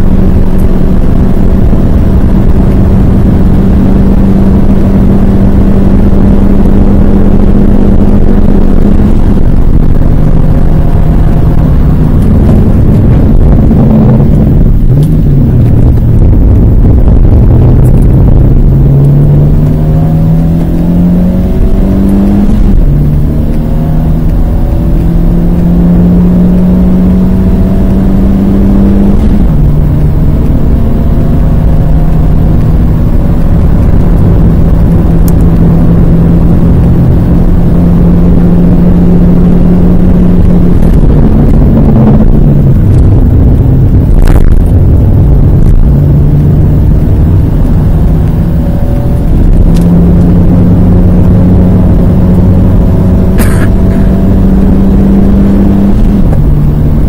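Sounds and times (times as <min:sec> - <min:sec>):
car engine accelerating: 0:00.0 - 0:57.0
road and wind noise: 0:00.0 - 0:57.0.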